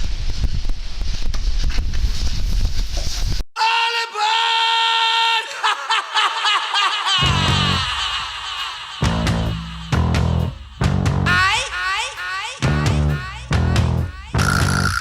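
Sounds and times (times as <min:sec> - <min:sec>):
wind noise on microphone: 0:00.0 - 0:03.5
music with high bending notes: 0:12.7 - 0:15.0.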